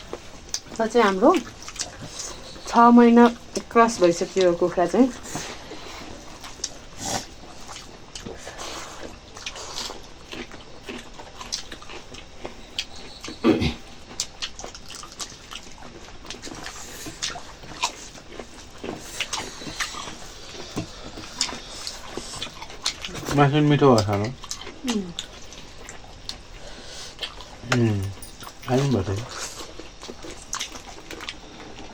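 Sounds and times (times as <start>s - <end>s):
chewing and mouth smacks: 0.0s - 23.4s, 24.0s - 31.9s.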